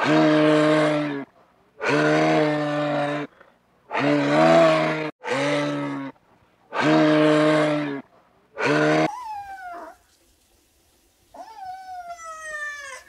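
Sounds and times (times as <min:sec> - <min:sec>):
cow mooing: 0:01.8 - 0:03.3, 0:03.9 - 0:06.2, 0:08.6 - 0:09.1.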